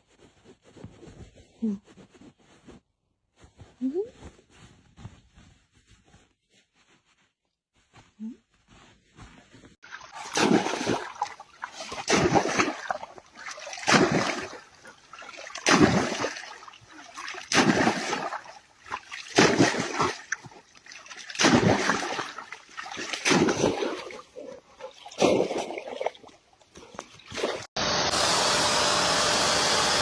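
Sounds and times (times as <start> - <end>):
water splashing: 9.8 - 27.7.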